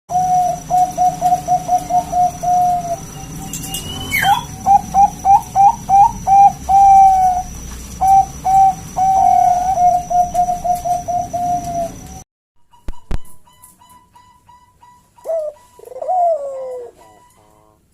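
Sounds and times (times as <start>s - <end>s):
dove cooing: 0.1s - 12.2s, 15.2s - 17.9s
rising squeal: 2.8s - 5.0s.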